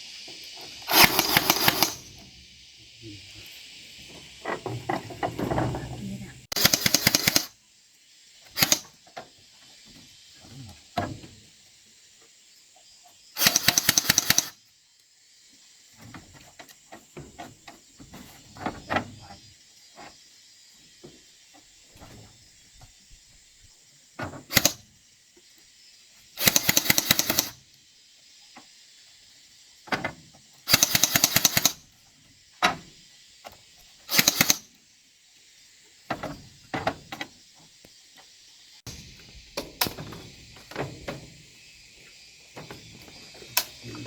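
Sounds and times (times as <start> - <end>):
insects droning: 0.0 - 44.0
rattling bursts of rapid strikes: 0.9 - 2.2, 6.5 - 7.5, 8.6 - 8.9, 13.4 - 14.6, 26.4 - 27.6, 30.7 - 31.8, 34.1 - 34.7.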